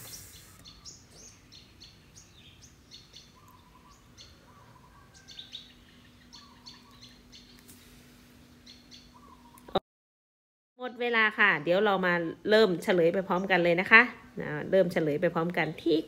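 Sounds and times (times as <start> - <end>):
faint bird chirps: 0.0 - 8.0, 8.6 - 9.8
low steady hum: 0.0 - 9.8.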